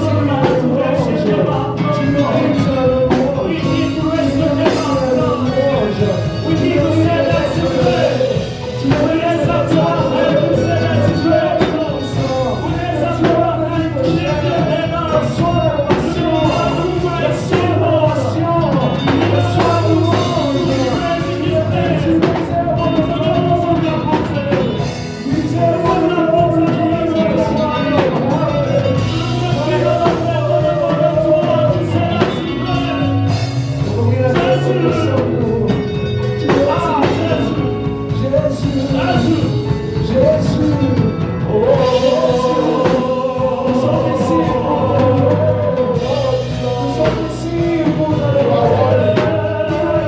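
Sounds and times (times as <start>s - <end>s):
band with drums playing: 0.0s - 50.0s
voices singing: 0.0s - 50.0s.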